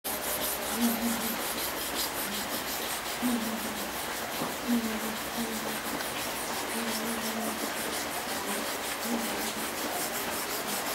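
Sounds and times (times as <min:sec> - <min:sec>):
hand rubbing on metal: 0:00.1 - 0:10.9.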